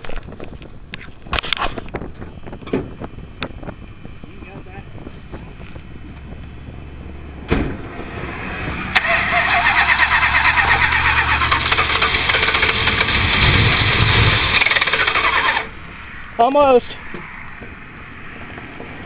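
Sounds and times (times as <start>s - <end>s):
engine cranking on starter: 9.0s - 15.8s.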